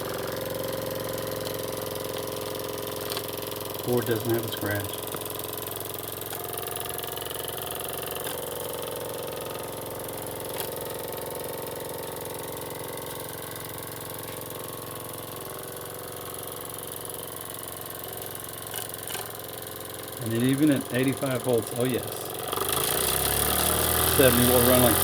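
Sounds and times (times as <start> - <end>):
steam engine running: 0.0 - 8.6, 18.7 - 25.0.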